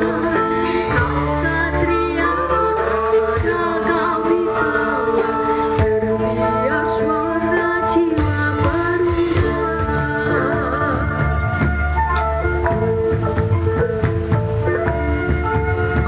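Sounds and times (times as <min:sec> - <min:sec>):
person singing: 0:00.0 - 0:11.9
steady low bass: 0:00.0 - 0:16.0.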